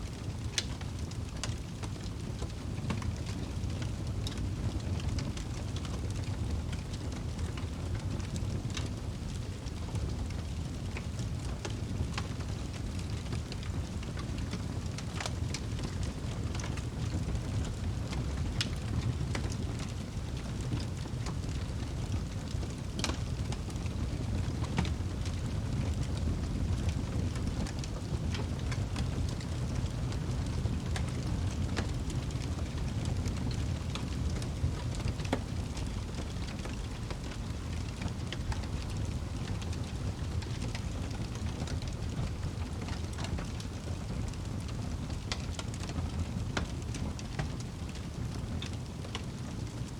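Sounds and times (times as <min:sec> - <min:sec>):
fire crackling and popping: 0:00.0 - 0:49.9
fire flames rumbling: 0:00.0 - 0:49.9.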